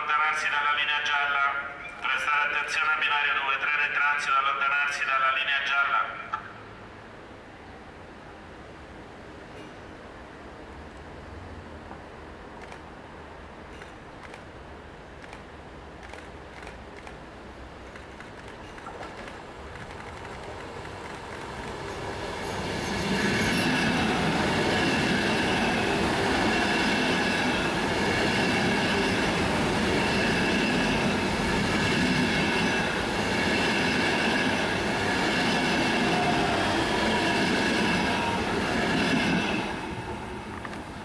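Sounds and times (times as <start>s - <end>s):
high train whine: 0.0s - 41.0s
train wheels rushing on rails: 17.8s - 41.0s.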